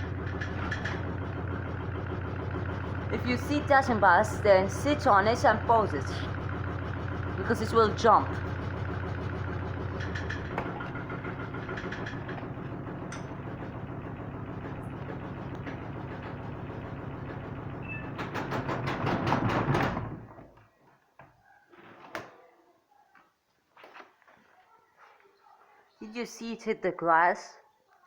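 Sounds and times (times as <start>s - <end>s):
washing machine spinning: 0.0s - 20.4s.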